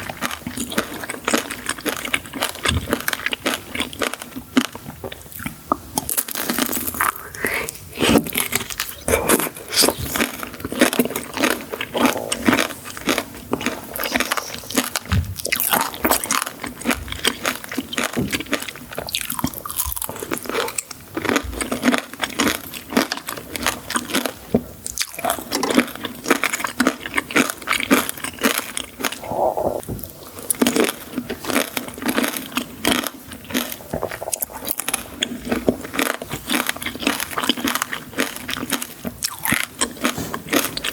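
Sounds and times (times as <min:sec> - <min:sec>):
person chewing crunchy sweets: 0:00.0 - 0:40.9.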